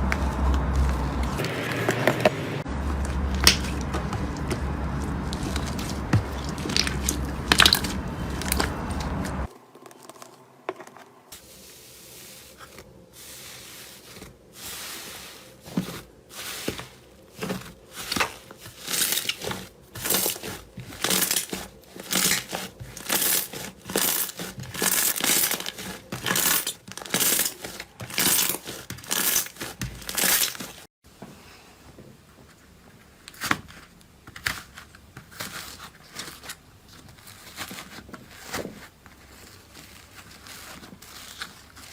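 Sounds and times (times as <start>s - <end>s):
slime crackling and tearing: 2.9s - 10.2s, 17.4s - 30.8s.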